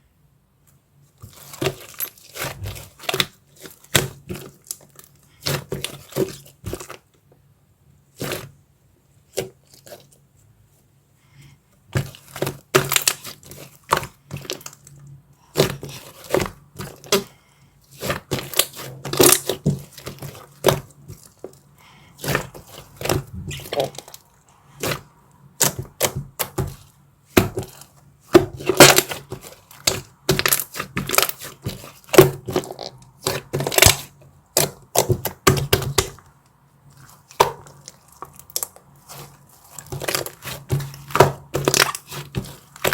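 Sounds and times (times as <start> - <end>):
chocolate cracking and snapping: 37.2 - 42.9.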